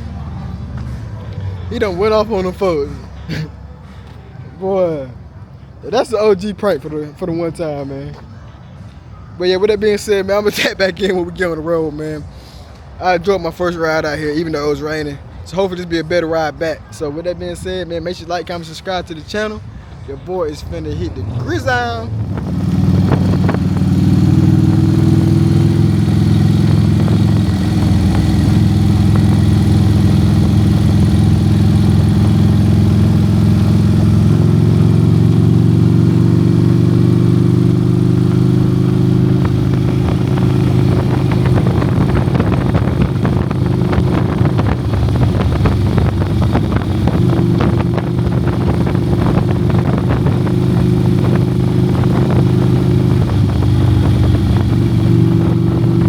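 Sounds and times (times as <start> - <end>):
motorcycle engine running: 22.1 - 56.0.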